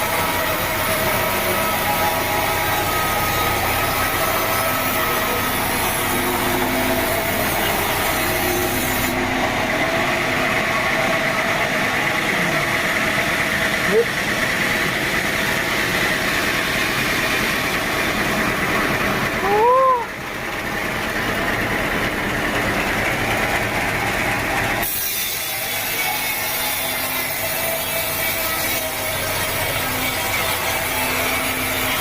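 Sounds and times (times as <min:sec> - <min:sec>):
saw blade hissing through wood: 0:00.0 - 0:09.2, 0:24.8 - 0:32.0
sawmill saw running: 0:00.0 - 0:32.0.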